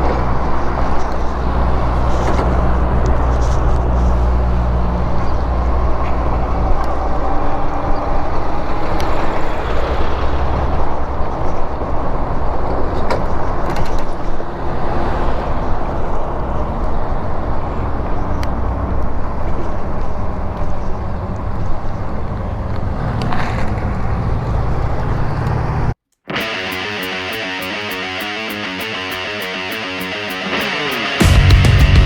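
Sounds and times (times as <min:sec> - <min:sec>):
road noise while riding: 0:00.0 - 0:26.2.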